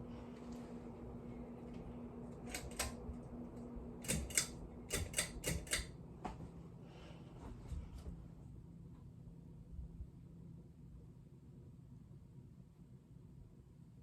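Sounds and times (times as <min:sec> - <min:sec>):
ceiling fan humming: 0:00.0 - 0:14.0
sharp mechanical clicks: 0:02.5 - 0:03.0, 0:04.0 - 0:05.9.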